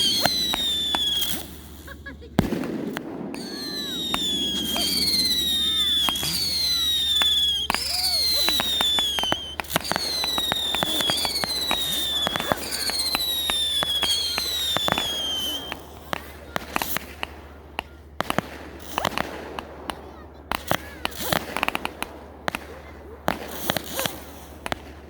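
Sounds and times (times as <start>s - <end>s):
firework whistles: 0.0s - 17.4s, 18.3s - 19.7s, 20.5s - 24.9s
firework cracks and bangs: 0.0s - 25.0s.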